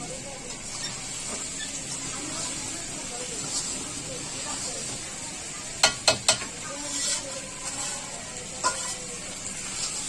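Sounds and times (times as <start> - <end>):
food sizzling in a pan: 0.0 - 10.0
spoon clacking against pan: 5.8 - 7.2.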